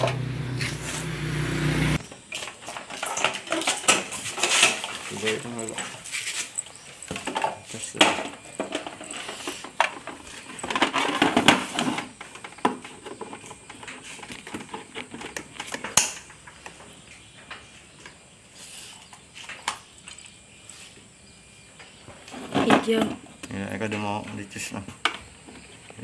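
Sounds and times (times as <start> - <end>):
hard objects clattering: 2.4 - 16.3.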